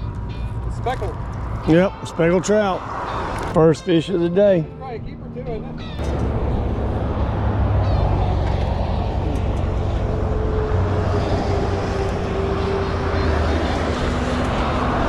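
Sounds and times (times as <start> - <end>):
road traffic rumble: 0.0 - 15.0
vehicle hum: 5.6 - 15.0.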